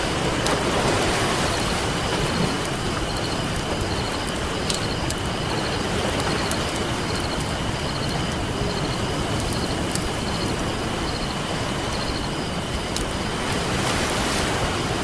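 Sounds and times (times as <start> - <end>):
ocean surf rushing: 0.0 - 15.0
campfire popping and crackling: 1.8 - 13.7.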